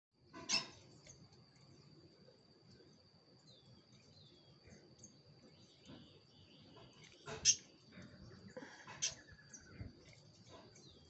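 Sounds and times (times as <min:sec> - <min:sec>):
faint bird chirps: 0:02.7 - 0:11.0.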